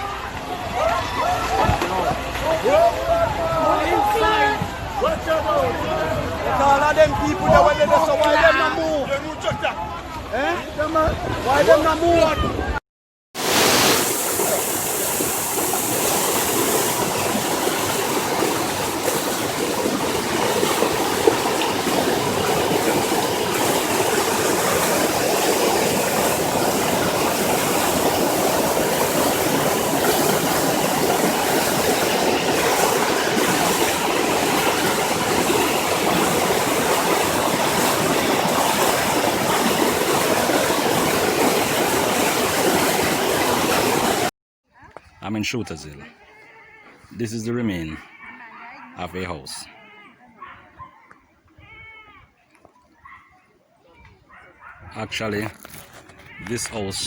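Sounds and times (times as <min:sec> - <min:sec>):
floodwater rushing: 0:13.4 - 0:44.3.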